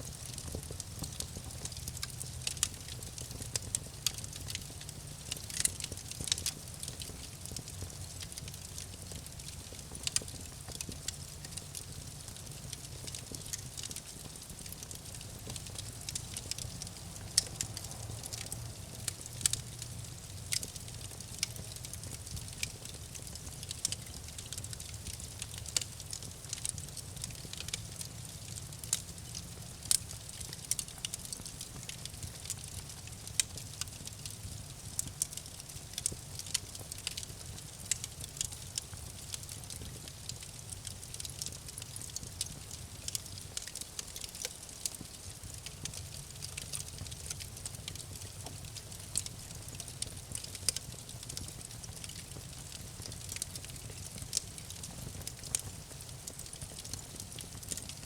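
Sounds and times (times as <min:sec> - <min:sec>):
campfire crackling and popping: 0:00.0 - 0:58.0
low rumble of flames: 0:00.0 - 0:58.0.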